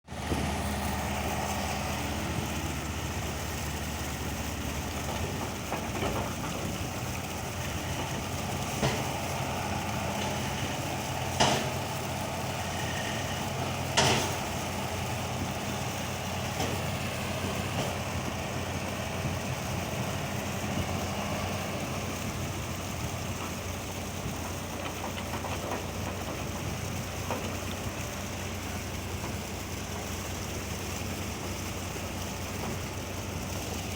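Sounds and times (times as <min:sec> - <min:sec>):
truck engine idling: 0:00.1 - 0:33.9.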